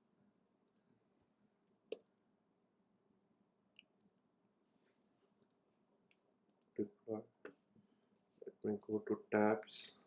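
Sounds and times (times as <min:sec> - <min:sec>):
computer mouse clicks: 0:01.7 - 0:02.2.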